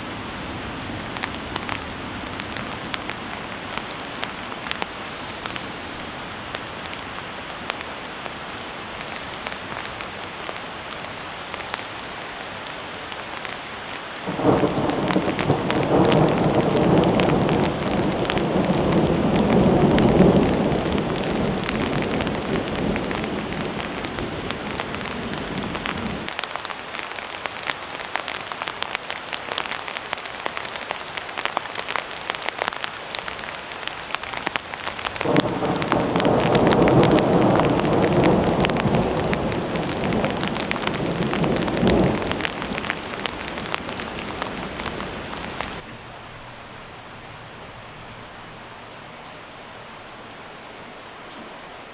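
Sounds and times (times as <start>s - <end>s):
heavy rain pattering: 0.0s - 51.9s
thunder rumbling: 0.1s - 7.9s, 14.2s - 26.3s, 35.1s - 45.8s.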